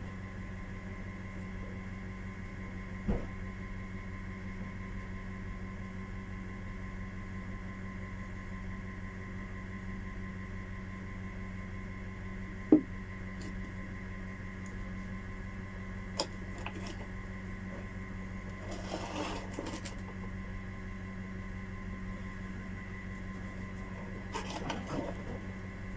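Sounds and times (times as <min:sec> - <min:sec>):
electrical hum: 0:00.0 - 0:25.9
scraping rustle: 0:18.5 - 0:20.2, 0:23.8 - 0:25.6.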